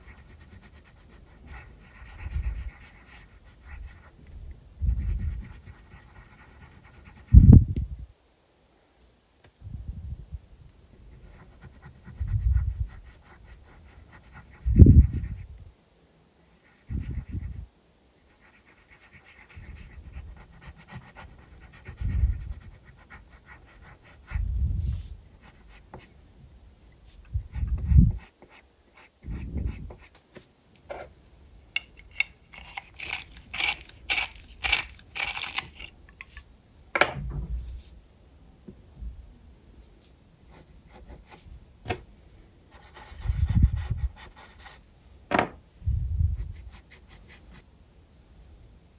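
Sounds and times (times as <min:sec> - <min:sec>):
pencil scratching on paper: 0:00.0 - 0:04.1, 0:04.9 - 0:07.5, 0:11.1 - 0:15.4, 0:16.5 - 0:17.6, 0:18.3 - 0:24.4, 0:27.5 - 0:30.1, 0:30.9 - 0:35.9, 0:40.5 - 0:41.5, 0:42.7 - 0:45.0.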